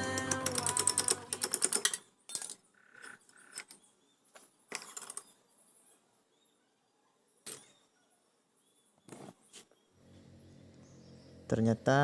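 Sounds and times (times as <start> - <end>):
small metal parts clinking: 0.3 - 3.8.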